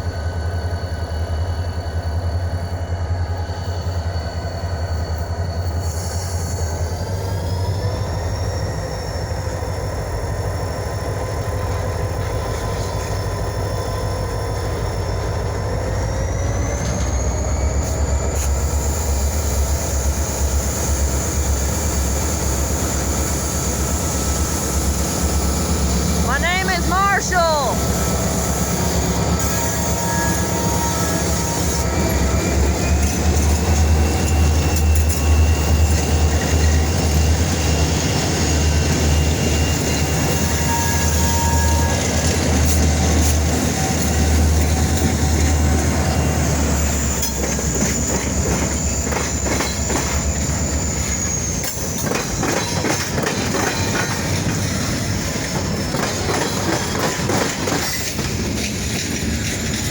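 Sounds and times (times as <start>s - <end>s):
train cars clattering over rails: 5.8s - 27.1s, 27.8s - 59.9s
wheel squeal: 47.0s - 53.0s.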